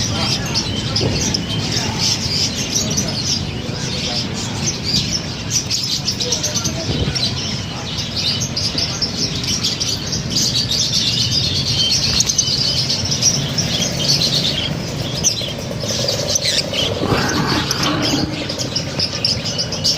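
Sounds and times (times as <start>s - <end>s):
lovebirds chirping: 11.9s - 19.9s.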